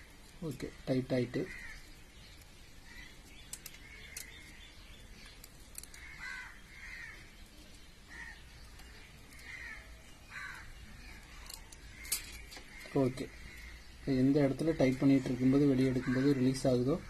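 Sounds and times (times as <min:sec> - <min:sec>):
bird harsh calls: 0:00.0 - 0:17.0.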